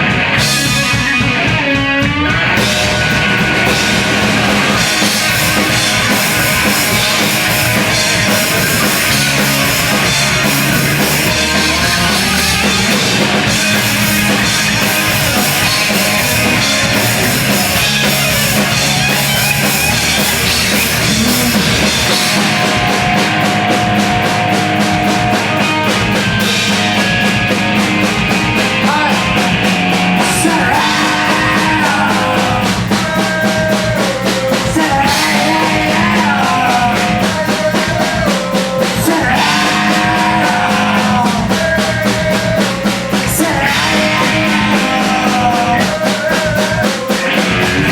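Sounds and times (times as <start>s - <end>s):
bass guitar: 0.0s - 47.9s
distorted electric guitars: 0.0s - 47.9s
drums: 0.0s - 47.9s
fast cymbal pattern: 3.0s - 30.2s.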